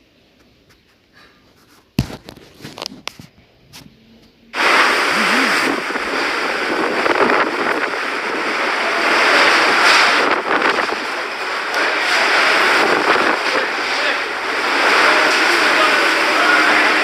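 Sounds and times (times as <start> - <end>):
rushing water: 4.6 - 17.0
storm wind rushing: 4.6 - 17.0.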